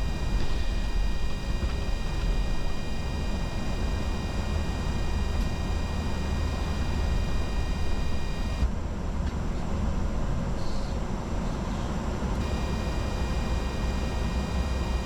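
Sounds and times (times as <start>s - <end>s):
faint high steady tones: 0.0s - 8.6s, 12.4s - 15.0s
cockpit airflow and engine rumble: 0.0s - 15.0s.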